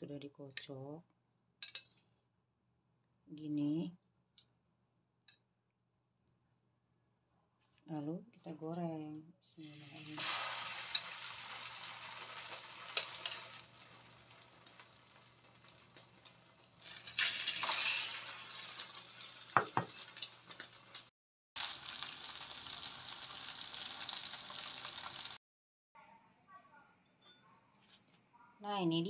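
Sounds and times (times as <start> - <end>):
metal tongs clinking: 1.6 - 2.0
food sizzling in hot oil: 9.6 - 25.4.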